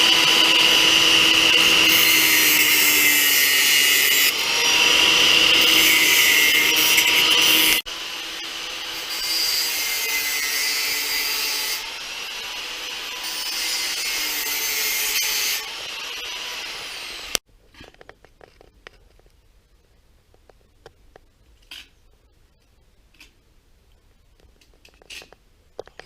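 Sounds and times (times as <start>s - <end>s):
power tool whining: 0.0s - 10.1s.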